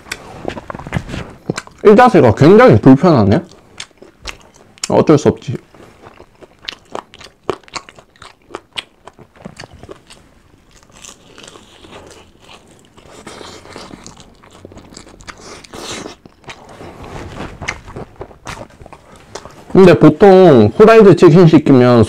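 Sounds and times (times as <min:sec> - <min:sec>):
chewing: 0:00.0 - 0:02.2, 0:03.3 - 0:19.8
fried chicken crunching: 0:00.0 - 0:02.2, 0:03.3 - 0:16.7.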